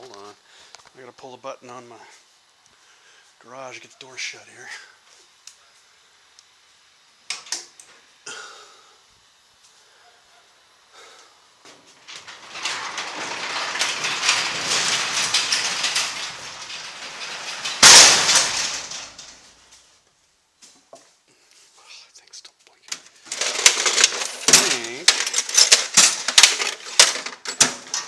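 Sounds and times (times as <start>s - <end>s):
garage door clicks: 11.7s - 19.4s
garage door banging shut: 11.7s - 19.6s, 23.3s - 28.0s
rollers rattling along tracks: 12.0s - 19.4s.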